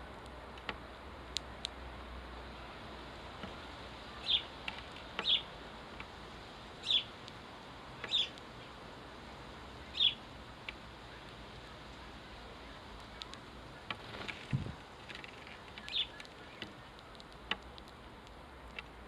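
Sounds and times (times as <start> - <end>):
steady background hiss: 0.0 - 19.0
sparrow chirping: 4.1 - 4.6, 5.2 - 5.6, 6.8 - 7.2, 8.0 - 8.8, 9.7 - 10.3, 15.4 - 17.0
faint ticks: 12.9 - 19.0.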